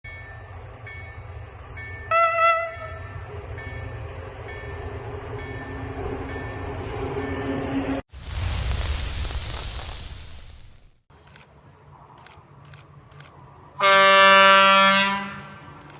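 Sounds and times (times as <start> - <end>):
train rumbling: 0.0 - 8.1, 11.1 - 15.9
train horn blast: 2.0 - 3.3, 13.8 - 15.9.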